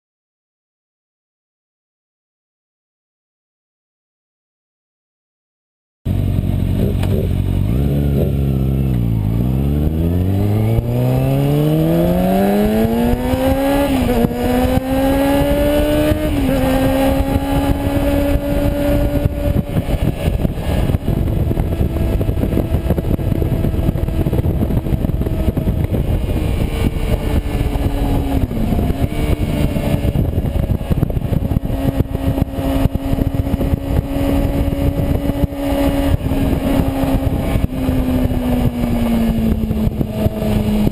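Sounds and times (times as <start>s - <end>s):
motorcycle engine revving: 6.1s - 40.9s
wind noise on microphone: 6.1s - 40.9s.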